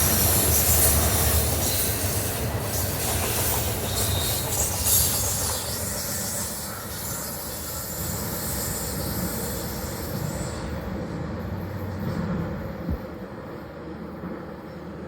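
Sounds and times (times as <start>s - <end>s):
hiss of steel wheels: 0.0s - 11.6s
train wheels rumbling on rails: 0.0s - 15.0s.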